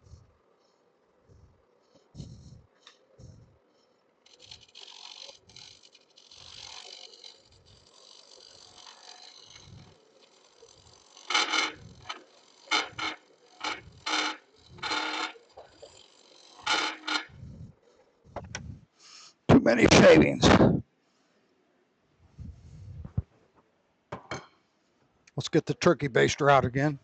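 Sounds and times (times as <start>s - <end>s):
turning tool scraping wood: 0.1s - 19.2s.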